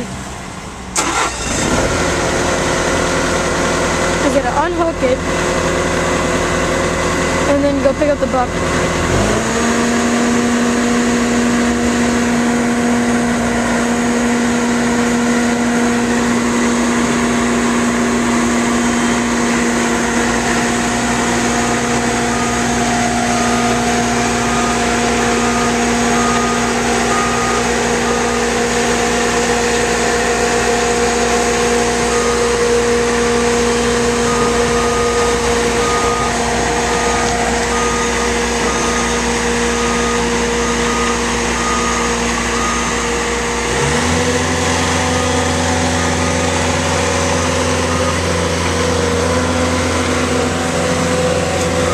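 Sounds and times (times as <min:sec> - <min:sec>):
diesel engine running: 0:00.0 - 0:51.9
backup alarm beeping: 0:20.2 - 0:29.6, 0:31.4 - 0:51.9.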